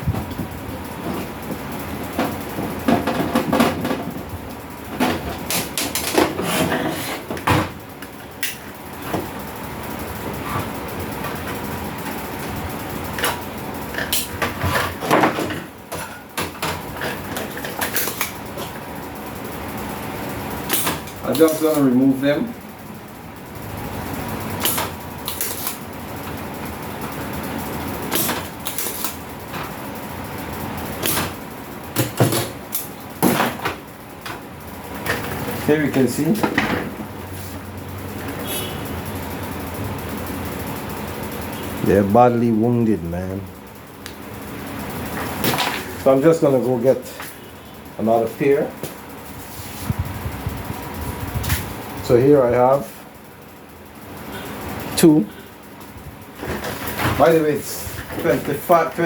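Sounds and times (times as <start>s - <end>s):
tools knocking and clattering: 0.0s - 9.4s, 10.3s - 18.8s, 30.9s - 37.3s, 45.1s - 47.4s, 55.8s - 59.0s
steady whirring with hum: 0.0s - 59.0s.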